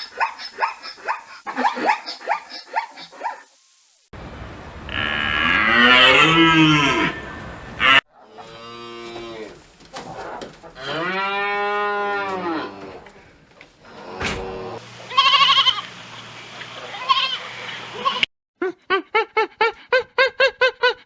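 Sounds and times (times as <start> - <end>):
cattle mooing: 4.2 - 8.0
short quavering bleat: 4.2 - 8.0, 15.1 - 15.8.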